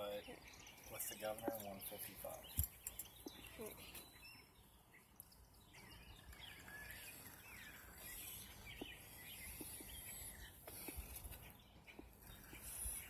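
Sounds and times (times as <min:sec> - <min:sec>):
birds chirping and singing: 0:00.0 - 0:13.0.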